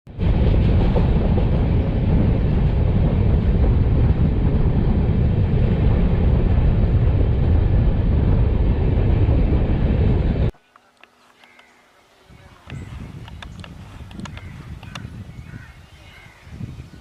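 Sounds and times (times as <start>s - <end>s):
train rumbling and rattling: 0.1s - 10.5s.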